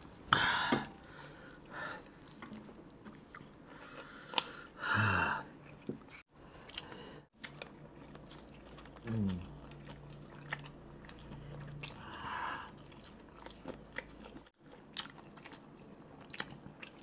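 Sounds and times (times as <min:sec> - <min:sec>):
wet chewing: 0:05.6 - 0:17.0.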